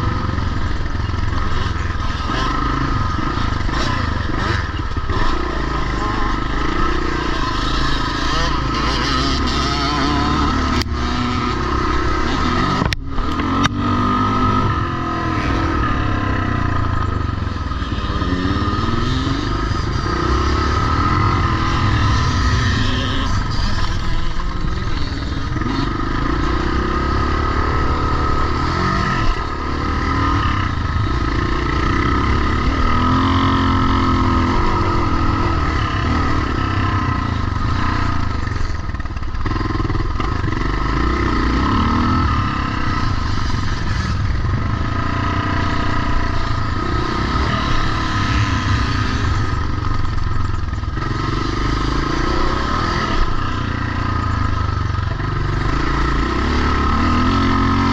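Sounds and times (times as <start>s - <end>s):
motorcycle engines revving: 0.0s - 57.9s.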